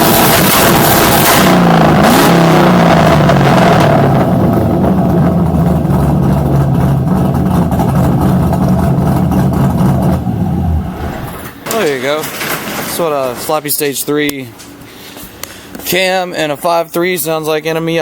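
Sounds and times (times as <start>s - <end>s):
engine revving and idling: 0.0s - 11.6s.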